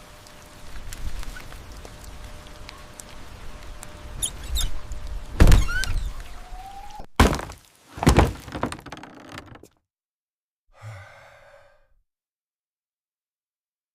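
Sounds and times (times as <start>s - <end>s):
heavy thuds: 7.2s - 9.6s.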